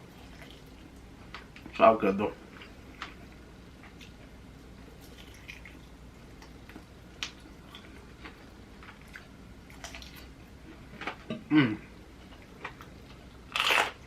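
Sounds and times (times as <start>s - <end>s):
person chewing food: 0.1s - 1.5s, 2.5s - 11.0s, 12.0s - 14.0s.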